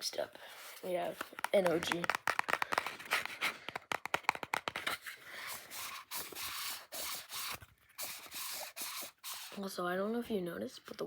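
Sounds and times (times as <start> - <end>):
rubbing scraping strokes: 5.0 - 9.7.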